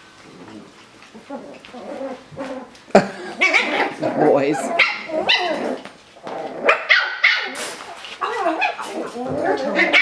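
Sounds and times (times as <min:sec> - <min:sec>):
puppies yipping and barking: 0:00.5 - 0:10.0.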